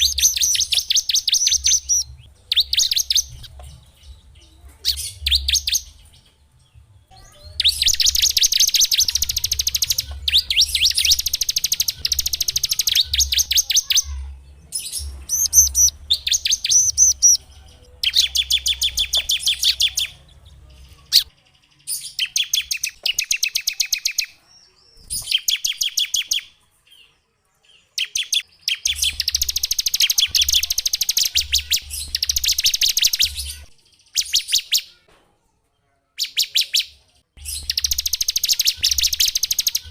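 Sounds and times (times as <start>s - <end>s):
songbird trilling: 0.0s - 3.6s, 7.2s - 20.2s, 28.0s - 34.9s, 37.4s - 39.9s.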